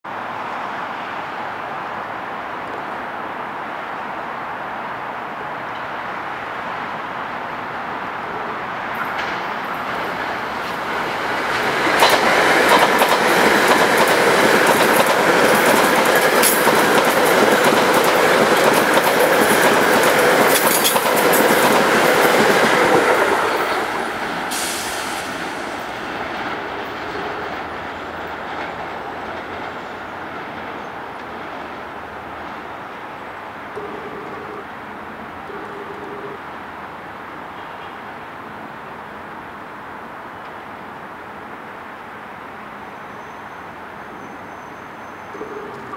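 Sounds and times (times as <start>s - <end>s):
train passing at speed: 0.1s - 45.9s
wheels clattering over rail joints: 9.0s - 24.5s.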